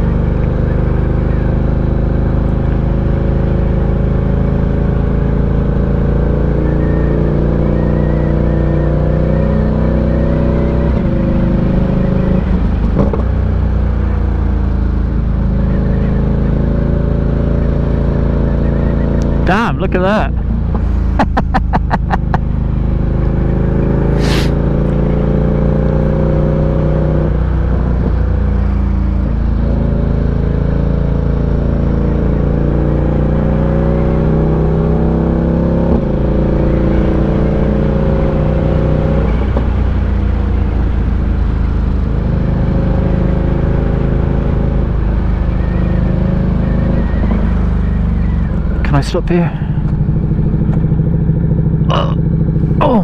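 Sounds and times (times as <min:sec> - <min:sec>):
motorcycle engine running: 0:20.3 - 0:35.2, 0:35.9 - 0:53.0
brief hiss: 0:24.2 - 0:24.6.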